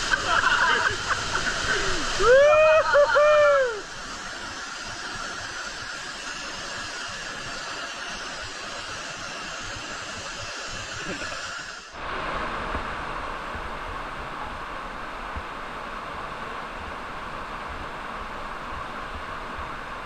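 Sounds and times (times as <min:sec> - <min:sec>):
rushing river water: 0:00.0 - 0:20.0.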